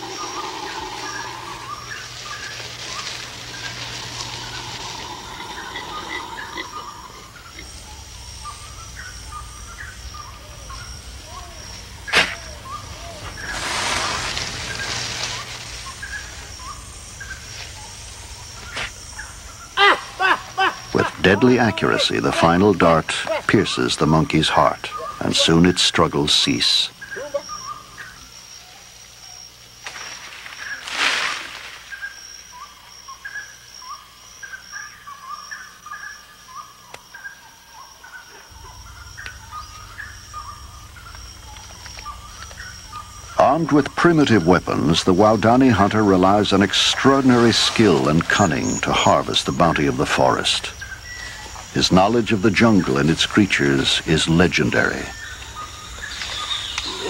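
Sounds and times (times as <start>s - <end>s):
faint high insect tone: 0.0s - 57.0s
steady hiss: 0.0s - 57.0s
short chirping calls: 31.9s - 57.0s.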